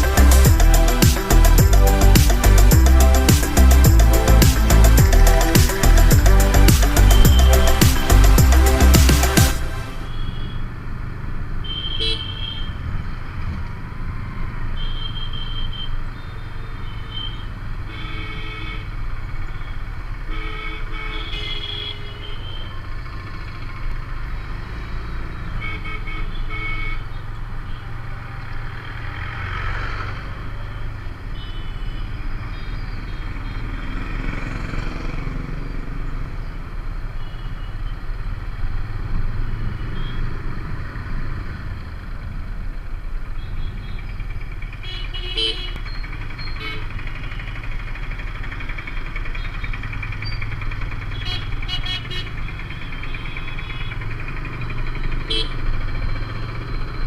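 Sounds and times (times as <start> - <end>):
motorcycle engine running: 0.0 - 10.2, 44.0 - 57.0
vehicle horns beeping: 0.0 - 10.8, 11.6 - 12.8, 14.8 - 19.0, 19.6 - 22.8, 25.5 - 28.0, 31.2 - 34.0, 37.2 - 38.0, 39.8 - 40.4, 44.8 - 47.6, 51.1 - 54.4, 55.1 - 55.7.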